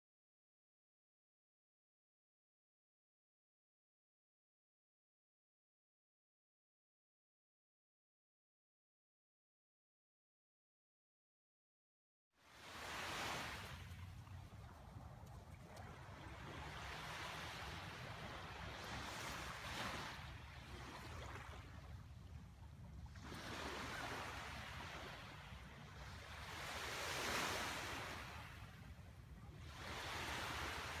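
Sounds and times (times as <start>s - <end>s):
small waves washing onto shore: 12.4s - 31.0s.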